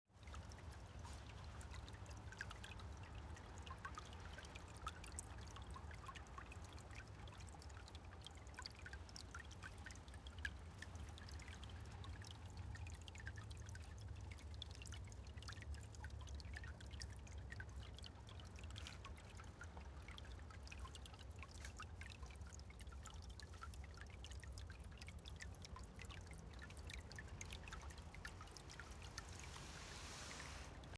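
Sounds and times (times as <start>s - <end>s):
stream trickling: 0.1s - 30.9s
water drips and plinks: 0.1s - 30.9s.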